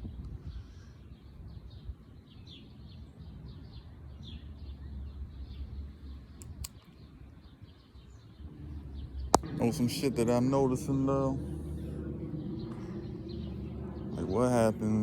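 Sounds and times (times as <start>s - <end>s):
birds chirping: 0.5s - 15.0s
steady low rumble: 8.4s - 15.0s.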